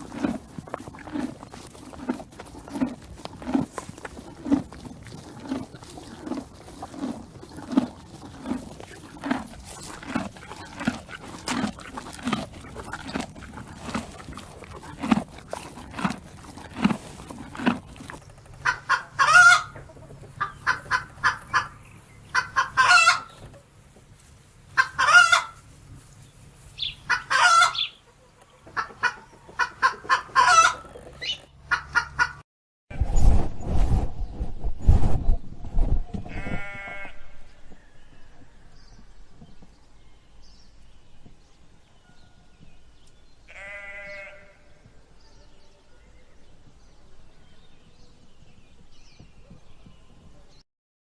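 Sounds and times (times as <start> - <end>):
low animal grunts: 0.0 - 18.2
hens clucking: 0.0 - 23.6, 24.8 - 25.6, 27.0 - 32.4.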